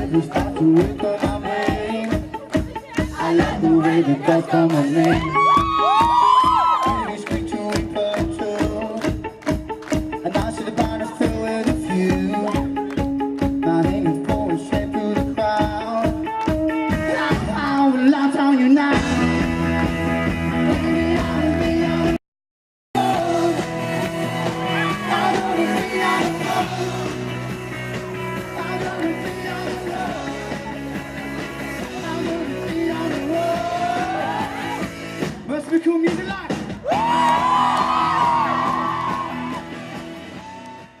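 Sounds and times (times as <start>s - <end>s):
person singing: 0.0s - 9.5s, 10.2s - 19.3s, 20.6s - 22.2s, 23.0s - 27.4s, 28.4s - 31.0s, 31.8s - 34.9s
live rock band: 0.0s - 22.2s, 23.0s - 41.0s.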